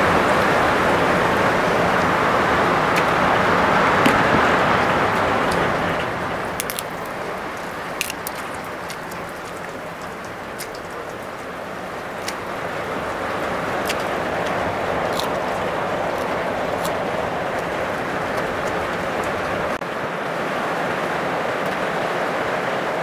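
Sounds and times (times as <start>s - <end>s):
heavy rain falling: 0.0s - 23.0s
leafy greens torn and eaten: 6.4s - 19.4s.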